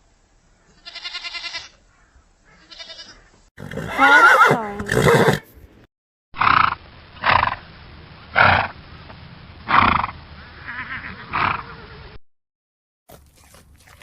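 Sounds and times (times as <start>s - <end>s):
horse neighing: 3.6s - 5.5s.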